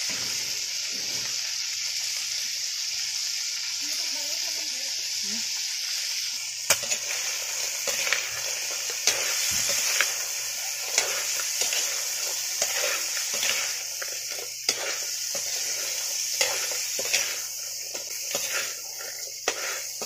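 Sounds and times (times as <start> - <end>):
food sizzling in a wok: 0.0 - 20.0
metal spatula scraping a pan: 6.7 - 20.0.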